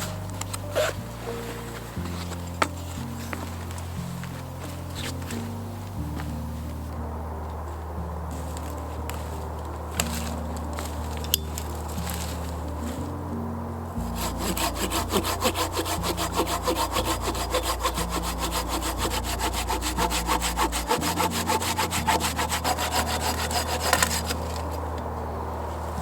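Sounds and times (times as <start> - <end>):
hand saw cutting wood: 14.0 - 24.8.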